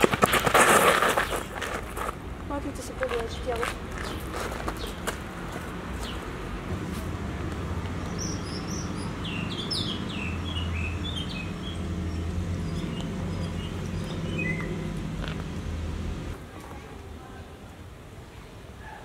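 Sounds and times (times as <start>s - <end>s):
small birds chirping: 3.1s - 5.1s, 6.0s - 6.4s, 8.0s - 15.1s.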